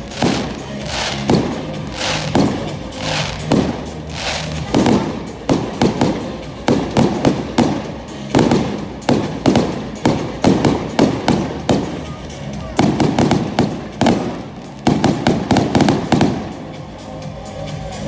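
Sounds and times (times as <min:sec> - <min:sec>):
fireworks bursting in sharp bangs: 0:00.0 - 0:17.0.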